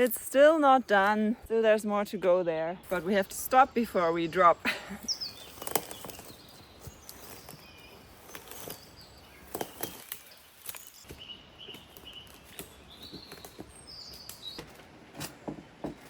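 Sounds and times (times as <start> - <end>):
high bird chirps: 2.8 - 14.7.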